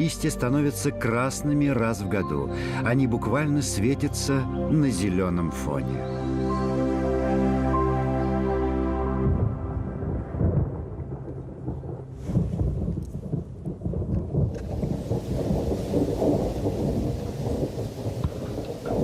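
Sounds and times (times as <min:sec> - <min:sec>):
thunder rumbling: 0:09.0 - 0:19.0
rain hissing: 0:10.0 - 0:19.0.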